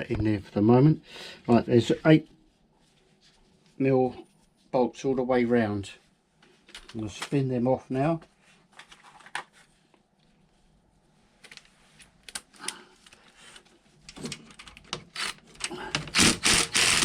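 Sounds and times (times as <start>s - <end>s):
hand tool clicking on bolts: 15.2s - 17.0s.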